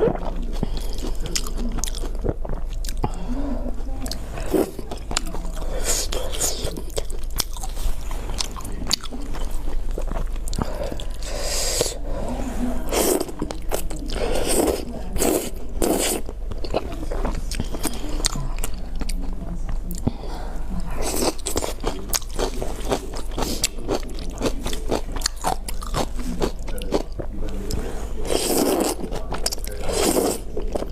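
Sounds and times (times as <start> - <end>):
person chewing food: 0.0 - 30.9
crunching food: 4.4 - 11.2, 21.0 - 30.9.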